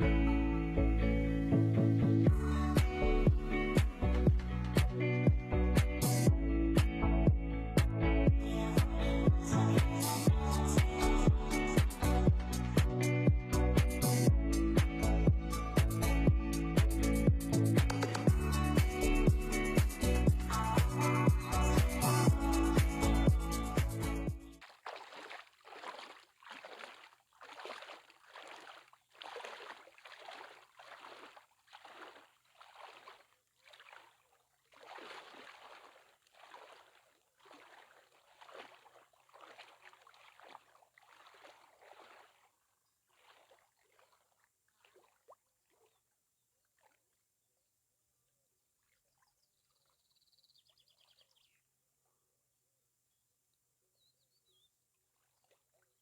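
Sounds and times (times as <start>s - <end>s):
water splashing from swimming: 24.6s - 46.0s
bird chirping: 49.1s - 51.6s, 53.9s - 54.8s.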